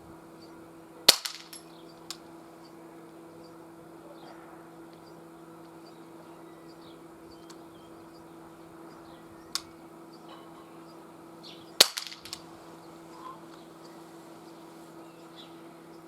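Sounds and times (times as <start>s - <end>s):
air pistol shots: 1.0s - 2.2s, 11.7s - 12.6s
rattle of small clicks: 1.1s - 2.2s, 11.8s - 12.5s.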